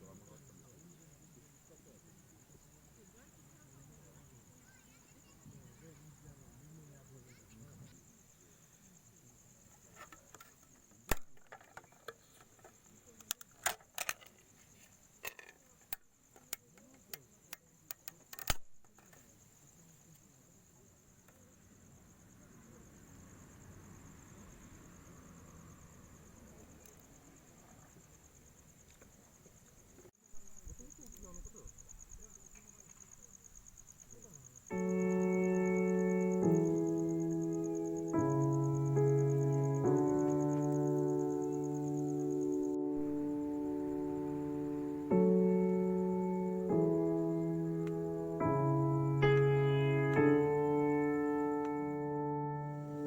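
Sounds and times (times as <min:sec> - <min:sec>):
insects chirping: 0:00.0 - 0:53.0
sharp clicks and knocks: 0:15.2 - 0:19.2
held keyboard chord: 0:34.7 - 0:53.0.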